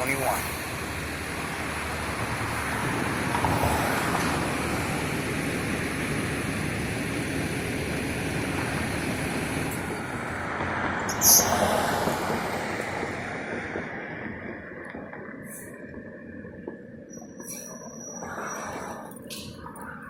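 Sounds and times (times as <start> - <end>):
fire engine rumble and hiss: 0.0 - 14.6, 15.4 - 16.6.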